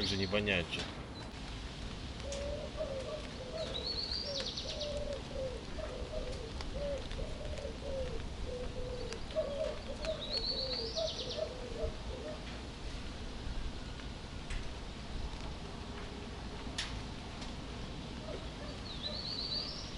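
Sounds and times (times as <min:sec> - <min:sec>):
low background noise: 0:00.0 - 0:19.9
low cooing bird calls: 0:02.2 - 0:14.0, 0:17.8 - 0:19.9.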